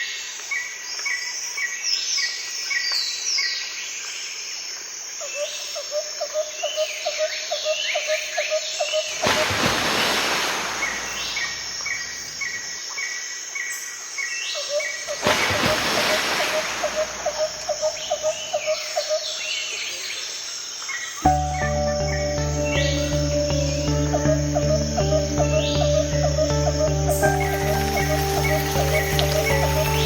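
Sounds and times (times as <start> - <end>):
small birds chirping: 16.2 - 30.0.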